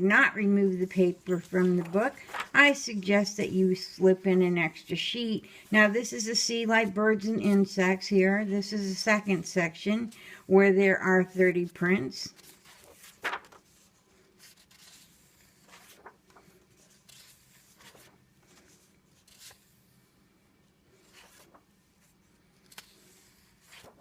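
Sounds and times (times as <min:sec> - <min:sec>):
paper pages rustling: 0:00.8 - 0:02.9, 0:12.2 - 0:20.0, 0:20.9 - 0:24.0.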